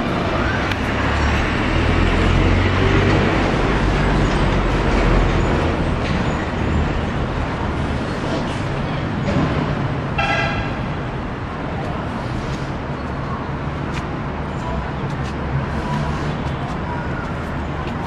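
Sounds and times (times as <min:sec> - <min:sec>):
train horn toot: 0:10.2 - 0:10.8.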